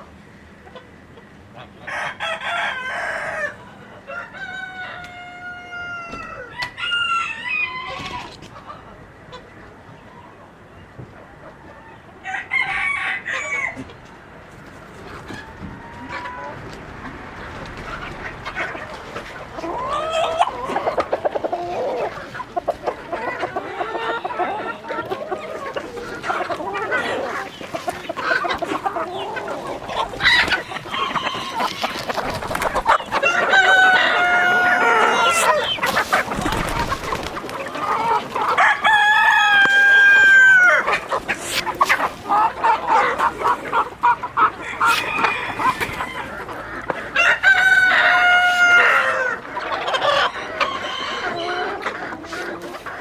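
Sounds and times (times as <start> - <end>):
chickens clucking: 0.0 - 53.0
rooster crowing: 1.9 - 8.1, 12.2 - 13.8, 33.1 - 35.8, 38.0 - 40.9, 44.6 - 46.5, 47.1 - 49.4, 50.1 - 51.8.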